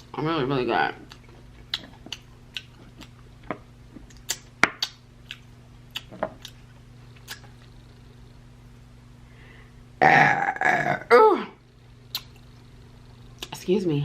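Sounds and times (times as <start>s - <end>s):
low steady hum: 0.0s - 14.0s
mouth chewing and lip smacks: 1.0s - 3.3s, 3.9s - 7.8s, 12.1s - 12.6s, 13.3s - 13.6s.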